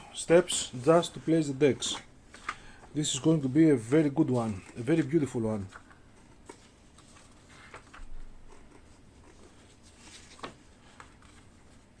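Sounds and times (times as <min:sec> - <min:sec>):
paper rustling: 0:00.4 - 0:12.0.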